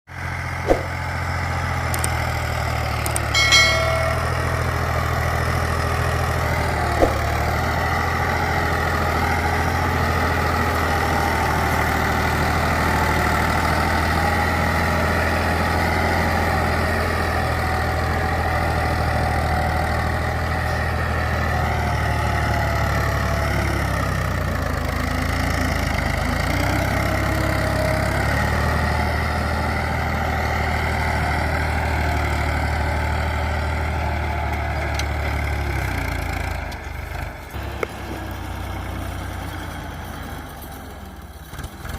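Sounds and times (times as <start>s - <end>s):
tractor engine running: 0.1s - 41.9s
brief sharp sound: 0.6s - 1.0s, 3.2s - 4.8s, 7.0s - 7.4s
clicks: 2.0s - 2.2s, 3.0s - 4.5s.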